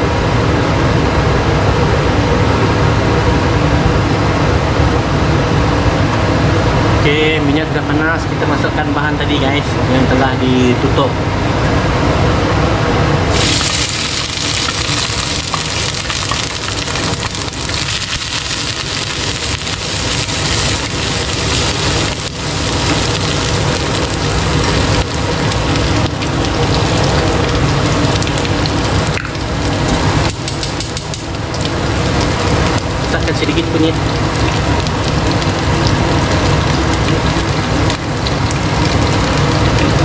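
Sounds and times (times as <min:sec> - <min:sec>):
aromatics sizzling in hot oil: 0:13.3 - 0:40.0.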